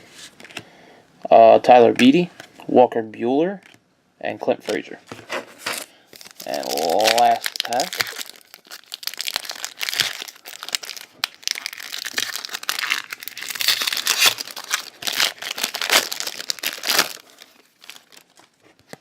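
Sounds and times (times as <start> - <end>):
foil wrapper crinkling and tearing: 5.7 - 19.0.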